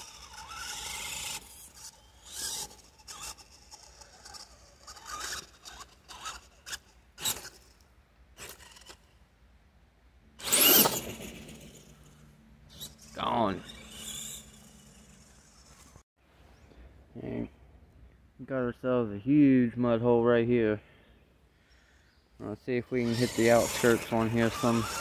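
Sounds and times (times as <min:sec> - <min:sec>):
electric motor whining: 0:10.4 - 0:16.0, 0:23.0 - 0:25.0
wheels churning through mud: 0:23.0 - 0:25.0.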